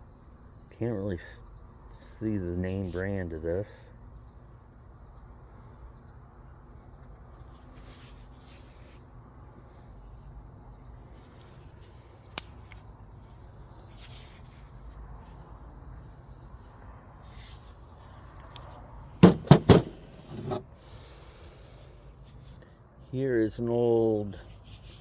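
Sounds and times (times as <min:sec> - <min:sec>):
cricket chirping: 0:00.0 - 0:25.0
handling rustles: 0:13.8 - 0:15.5.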